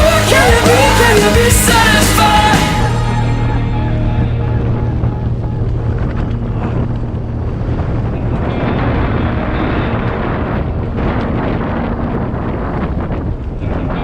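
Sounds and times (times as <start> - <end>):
wind rushing over microphone: 0.0 - 14.0
mountain bike rolling and rattling: 3.6 - 14.0.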